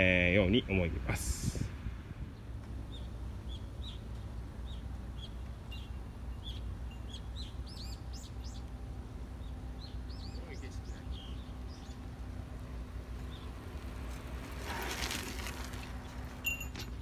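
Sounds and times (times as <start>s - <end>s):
steady low rumble: 0.0s - 16.4s
bird chirping: 2.4s - 12.1s, 13.2s - 13.7s.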